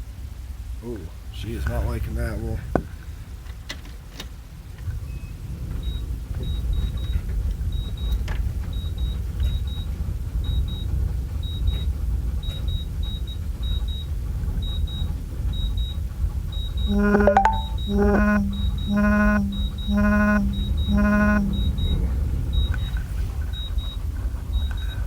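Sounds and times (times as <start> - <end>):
diesel engine rumbling: 5.0 - 25.0
dash warning beeper: 16.7 - 23.0.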